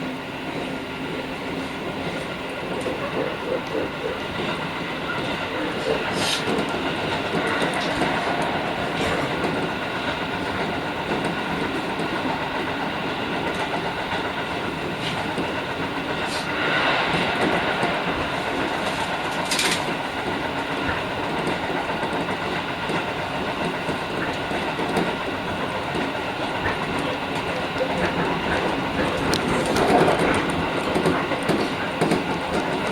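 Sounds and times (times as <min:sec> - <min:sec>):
train wheels rolling on rail: 0:00.0 - 0:32.9
sharp rail clacks: 0:04.4 - 0:32.9.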